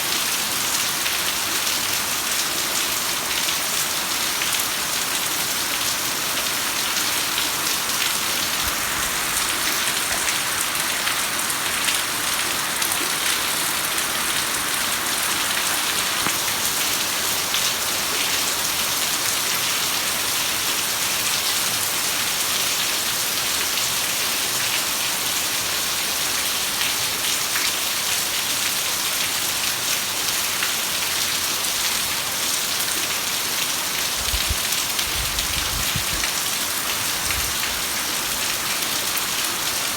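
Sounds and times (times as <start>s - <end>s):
heavy rain hissing: 5.6s - 18.8s.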